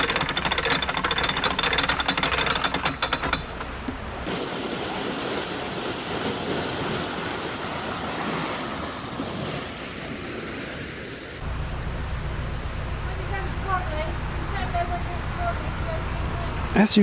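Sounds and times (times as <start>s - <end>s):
low engine hum: 11.2s - 17.0s.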